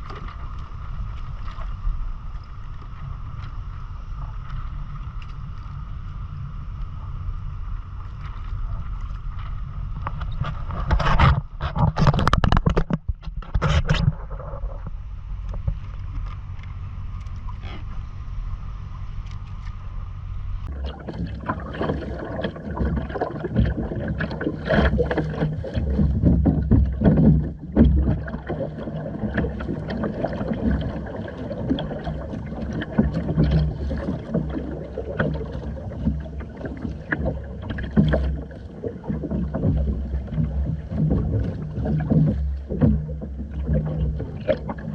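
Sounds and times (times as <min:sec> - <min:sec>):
water splashing: 0:00.0 - 0:05.8, 0:20.6 - 0:44.9.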